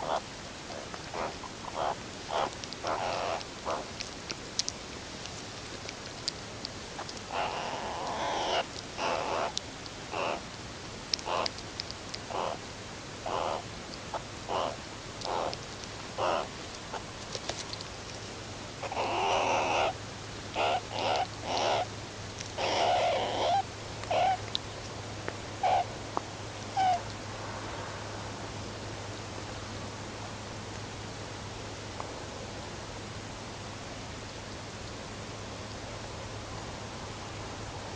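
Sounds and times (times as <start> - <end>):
meerkats calling: 0.0 - 4.7, 7.0 - 10.4, 11.1 - 11.6, 12.2 - 12.6, 13.2 - 17.1, 18.8 - 24.6, 25.6 - 25.9, 26.7 - 27.1
steady hiss: 0.0 - 37.9.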